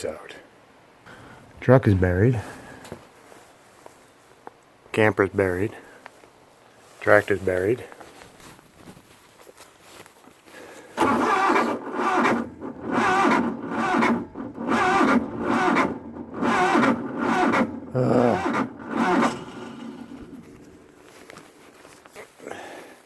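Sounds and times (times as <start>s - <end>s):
tractor engine cranking: 10.9s - 22.7s.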